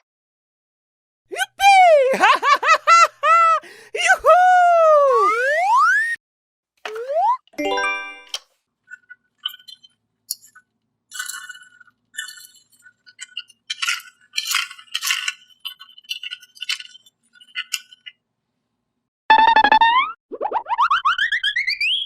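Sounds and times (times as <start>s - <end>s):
cartoon rising notes: 5.1s - 6.2s, 6.9s - 8.4s, 19.3s - 22.0s.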